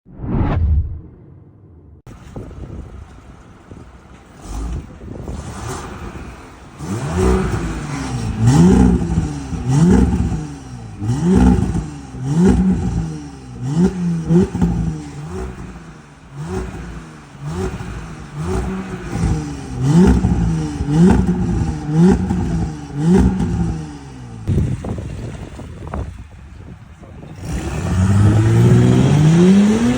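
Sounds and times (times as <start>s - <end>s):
car engine idling: 2.1s - 27.3s
car exhaust revving in blips: 4.3s - 24.9s, 27.4s - 29.9s.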